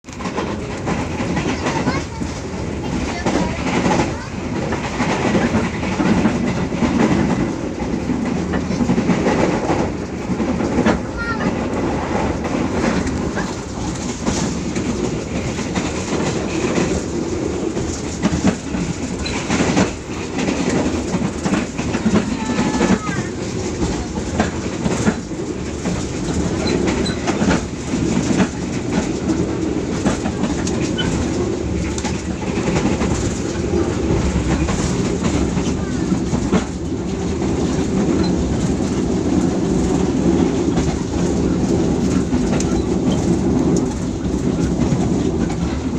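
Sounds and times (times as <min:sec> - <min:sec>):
train rumbling: 0:00.0 - 0:45.9
wheels clacking over rail joints: 0:00.0 - 0:45.9.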